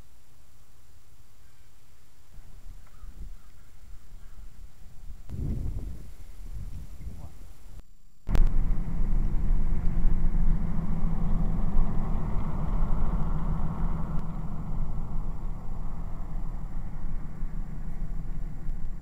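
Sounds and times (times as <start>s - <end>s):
engine hum: 8.2s - 19.0s
road noise: 8.3s - 19.0s.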